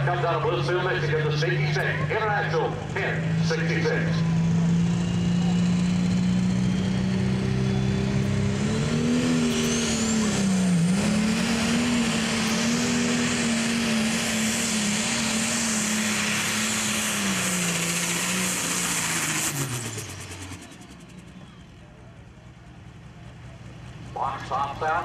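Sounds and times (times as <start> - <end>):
tractor diesel engine under load: 0.0 - 25.0
high turbo whistle: 4.2 - 10.8.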